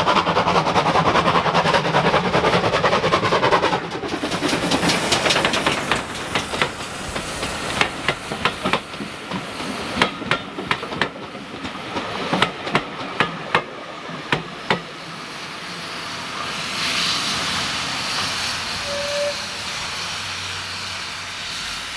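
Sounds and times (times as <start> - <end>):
steam locomotive hiss: 0.0 - 21.9
train wheels knocking over rail joints: 2.6 - 13.7.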